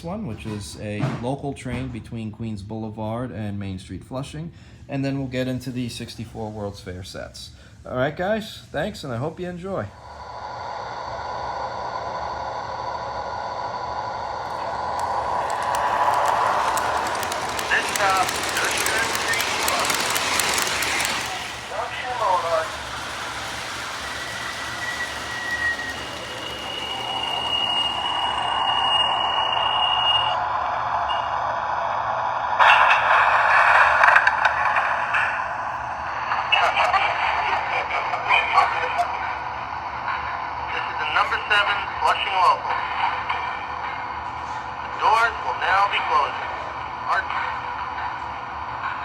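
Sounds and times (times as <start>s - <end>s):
model train whirring: 5.0s - 31.1s, 32.5s - 49.0s
thin high whine: 8.8s - 49.0s
model train motor hiss: 13.2s - 28.9s
wheels clicking on rails: 14.0s - 29.4s.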